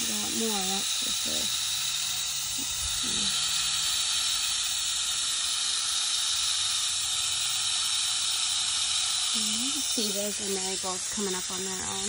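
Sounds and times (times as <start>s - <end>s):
hose nozzle spraying water: 0.0s - 12.0s.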